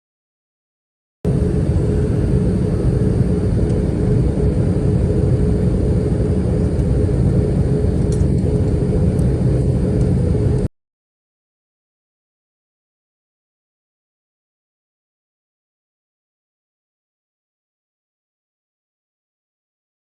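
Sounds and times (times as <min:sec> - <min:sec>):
thin steady hum: 0:01.3 - 0:10.7.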